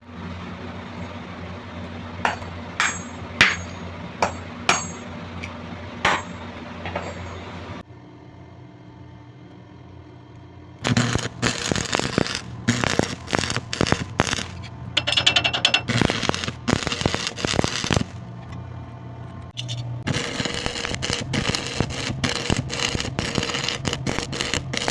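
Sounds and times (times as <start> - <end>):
steady hum: 0.0 - 24.9
rapid knocking and scraping on metal: 13.8 - 17.8.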